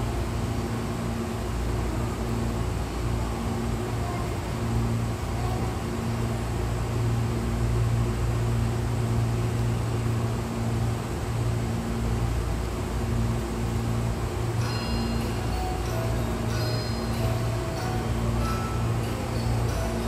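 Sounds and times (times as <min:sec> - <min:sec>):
stopped electric train humming: 0:00.0 - 0:20.0
steady electronic tones: 0:14.3 - 0:20.0.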